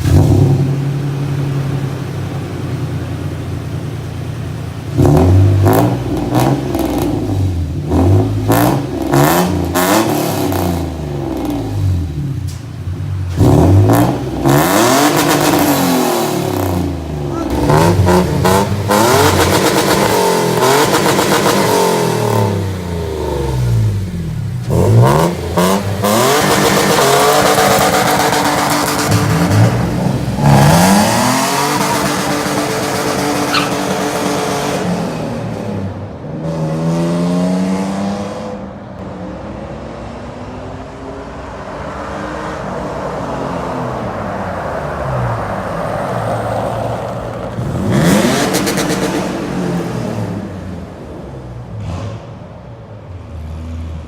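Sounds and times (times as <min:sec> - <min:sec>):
engine revving through exhaust: 0:00.0 - 0:03.2, 0:04.3 - 0:12.4, 0:13.2 - 0:38.6, 0:47.6 - 0:50.8.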